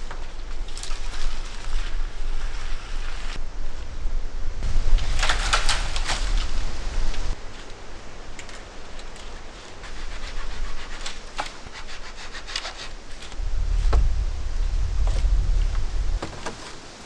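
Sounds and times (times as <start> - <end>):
branches scraping and rubbing: 0.0 - 3.8, 4.6 - 17.0
low rumble: 13.4 - 16.5.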